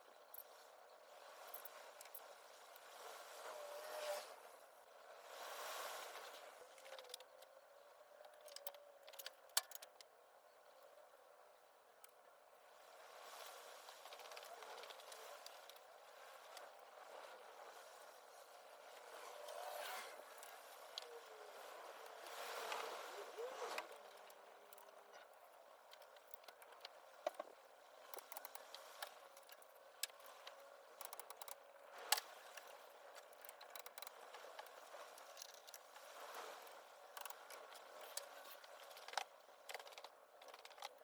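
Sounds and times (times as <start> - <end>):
faint steady hum: 0.0 - 41.0
clicks of tools and engine parts: 6.8 - 10.1, 23.7 - 36.1, 37.1 - 41.0.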